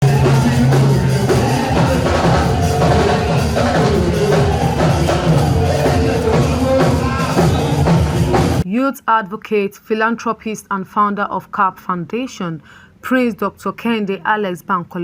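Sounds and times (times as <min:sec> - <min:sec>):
intro music: 0:00.0 - 0:08.6
steady drum beat: 0:00.0 - 0:08.6.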